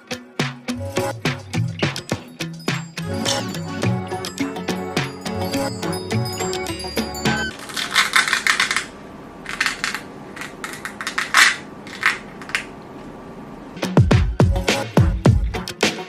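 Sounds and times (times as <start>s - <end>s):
music with falling bass: 0.4s - 7.5s, 13.8s - 16.0s
small hard objects clattering: 7.5s - 12.8s.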